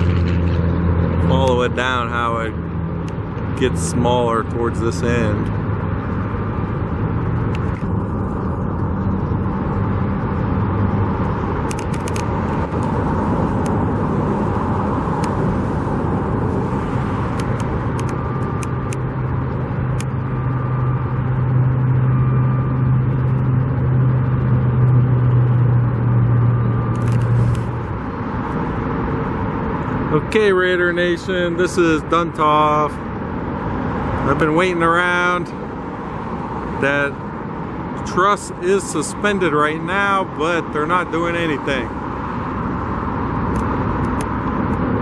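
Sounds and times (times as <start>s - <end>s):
deep engine drone: 0.0s - 30.8s
traffic noise: 0.0s - 45.0s.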